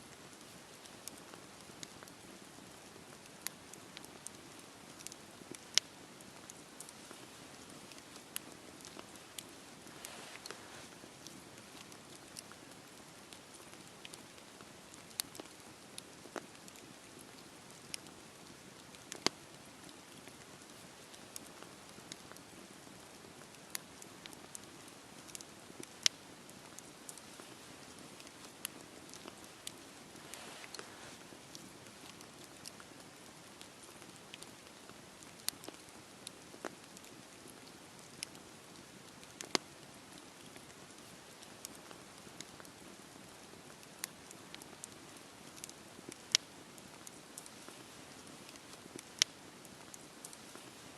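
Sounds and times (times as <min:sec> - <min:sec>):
rain falling: 0:00.0 - 0:50.9
campfire crackling and popping: 0:00.1 - 0:50.9
rain hissing: 0:06.8 - 0:12.1, 0:27.2 - 0:32.0.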